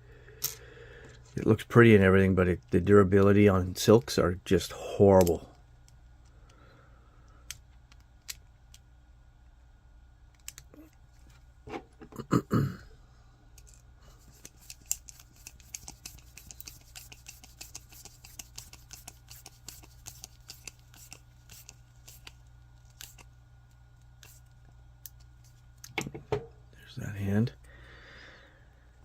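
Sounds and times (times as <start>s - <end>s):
plastic parts clicking and scraping: 13.6s - 23.3s.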